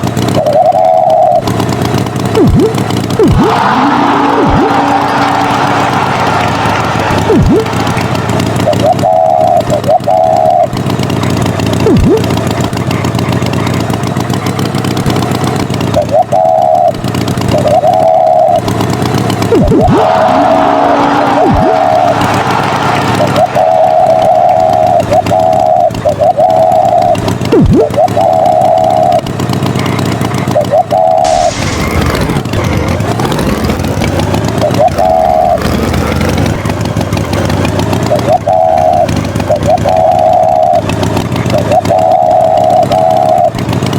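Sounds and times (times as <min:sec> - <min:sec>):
higher held tone: 0:00.0 - 0:01.6, 0:02.3 - 0:12.6, 0:14.8 - 0:29.3
tractor engine running: 0:00.0 - 0:43.9.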